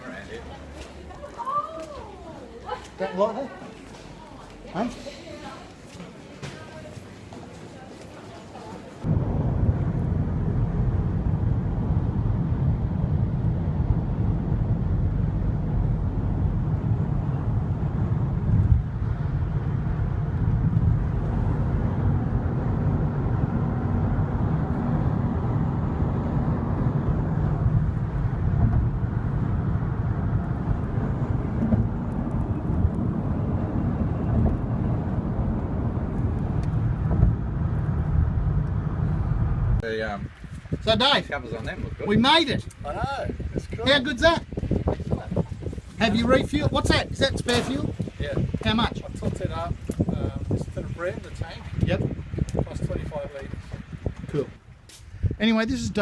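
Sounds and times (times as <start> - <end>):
vehicle rumbling in motion: 9.0 - 55.4
vehicle bumps: 27.6 - 33.2, 36.8 - 39.8.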